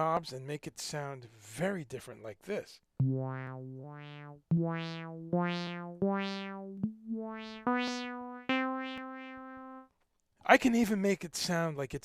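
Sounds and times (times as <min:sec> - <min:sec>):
synthesizer slow melody: 0:03.0 - 0:09.9.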